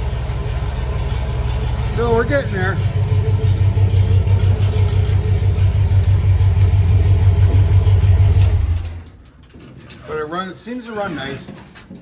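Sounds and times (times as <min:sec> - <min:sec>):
truck engine idling: 0:00.0 - 0:09.3.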